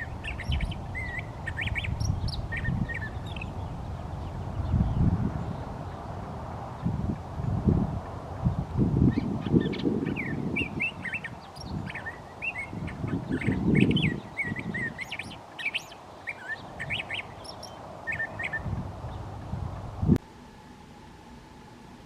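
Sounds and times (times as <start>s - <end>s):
bird singing: 0.0s - 7.0s, 9.0s - 19.4s.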